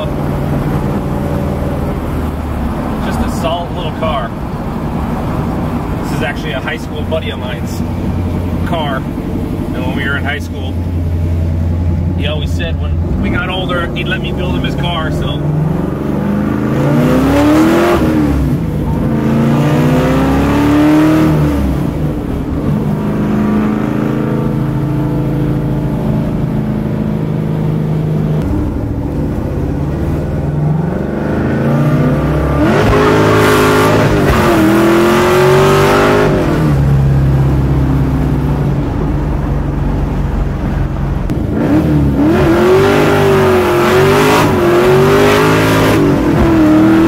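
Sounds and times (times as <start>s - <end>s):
car engine accelerating through gears: 12.9s - 47.0s.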